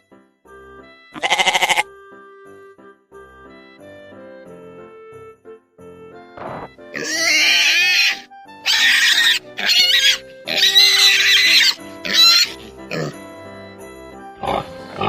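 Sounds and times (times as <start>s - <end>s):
background music with held notes: 0.0s - 15.0s
pig squealing: 1.2s - 1.8s, 7.0s - 13.2s, 14.4s - 15.0s.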